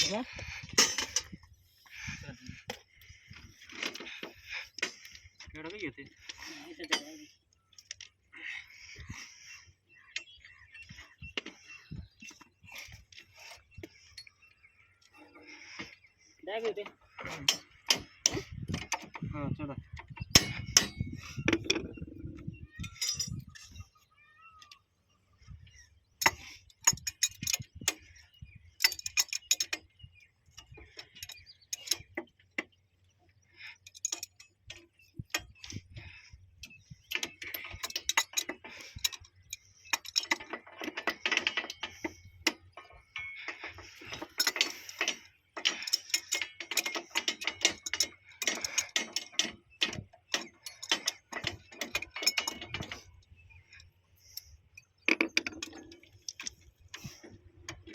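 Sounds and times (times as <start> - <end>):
hand tools clicking on steel: 20.3 - 21.8, 26.2 - 28.1, 28.8 - 29.9, 30.9 - 32.2, 33.6 - 57.9.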